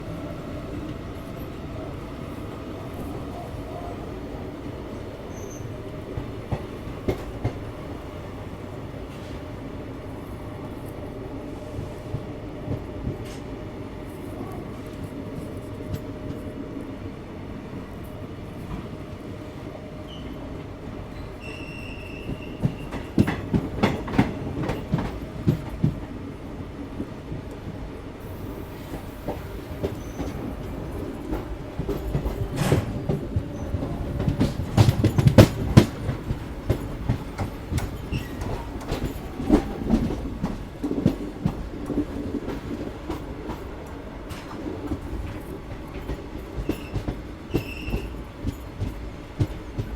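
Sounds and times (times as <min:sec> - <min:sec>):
train rumble: 0:00.0 - 0:49.9
train wheels clattering: 0:28.2 - 0:49.9.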